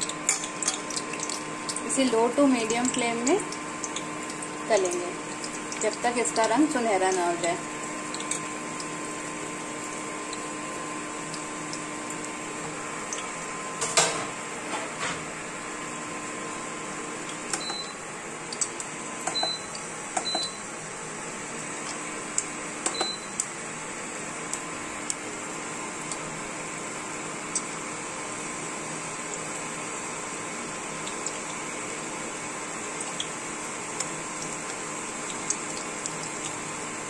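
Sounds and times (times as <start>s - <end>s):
induction cooktop humming: 0.0s - 37.0s
meat sizzling in hot oil: 0.0s - 37.0s
short beeps: 17.6s - 18.0s.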